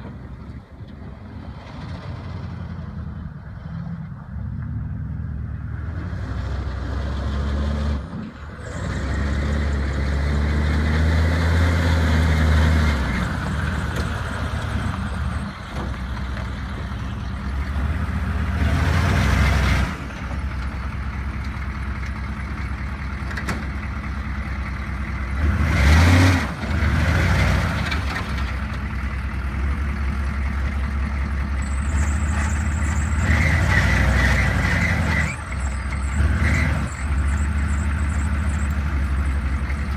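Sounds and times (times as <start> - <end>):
pickup truck engine revving: 17.7 - 20.1, 25.4 - 28.0, 31.8 - 39.3.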